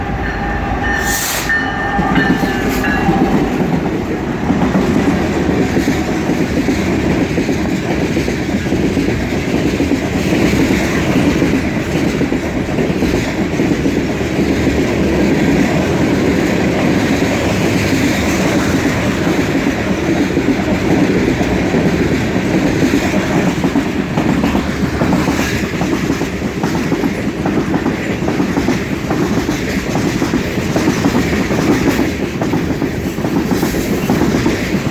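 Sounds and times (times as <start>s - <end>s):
high ringing tone: 0.0s - 3.7s
freight train rumbling past: 0.0s - 34.9s
wheel clatter over rail joints: 2.1s - 34.9s.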